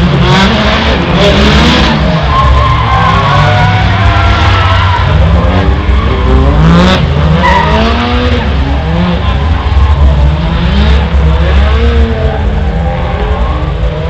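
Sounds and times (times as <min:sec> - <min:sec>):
car engine revving: 0:00.0 - 0:14.0
tyres squealing: 0:02.0 - 0:08.4.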